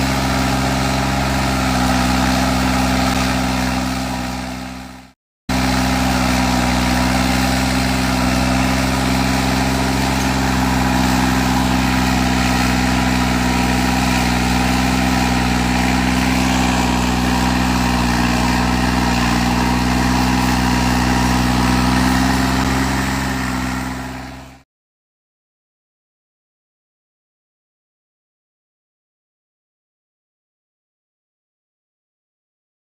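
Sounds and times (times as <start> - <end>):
tractor diesel engine running: 0.0 - 24.6.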